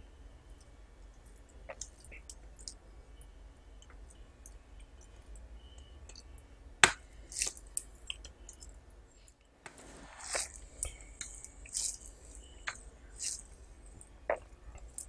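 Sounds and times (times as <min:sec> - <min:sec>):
mouth clicks and smacks: 0:01.6 - 0:02.8, 0:05.8 - 0:06.3, 0:06.9 - 0:08.7, 0:10.3 - 0:15.0.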